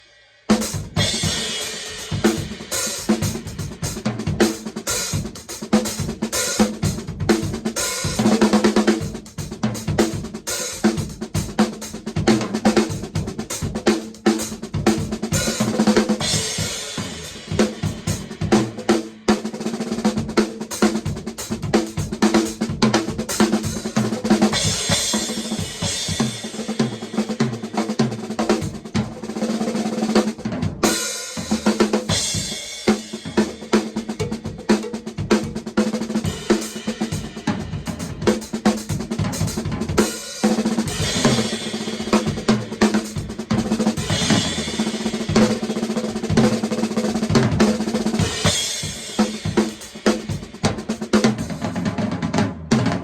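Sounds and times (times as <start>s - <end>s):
drum kit groove: 0.0s - 53.0s.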